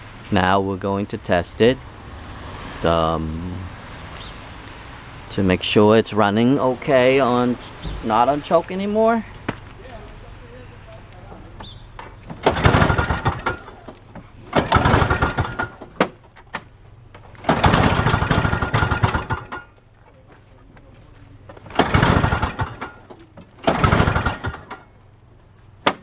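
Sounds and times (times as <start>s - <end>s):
snowblower engine starting and stalling: 6.7s - 26.0s.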